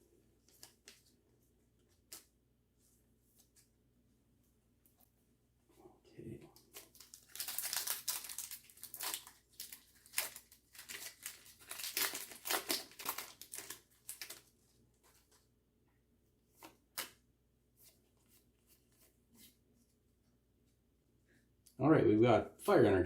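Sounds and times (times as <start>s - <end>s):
foil pack tearing and crinkling: 6.7s - 14.5s.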